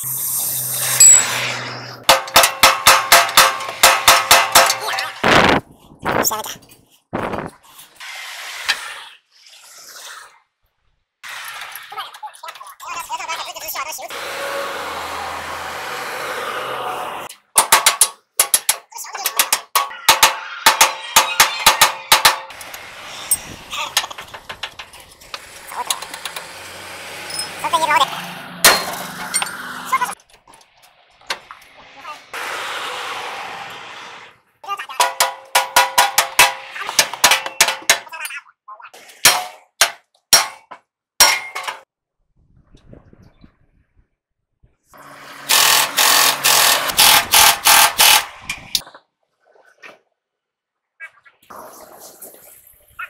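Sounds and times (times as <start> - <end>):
metal-on-metal strikes ringing: 19.4 - 22.6.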